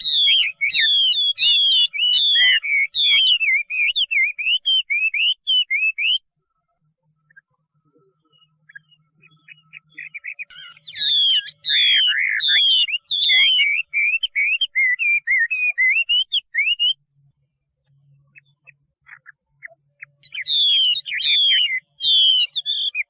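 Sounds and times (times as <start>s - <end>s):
bird singing whistled phrases: 0.0s - 6.3s, 8.1s - 17.1s, 18.3s - 23.0s.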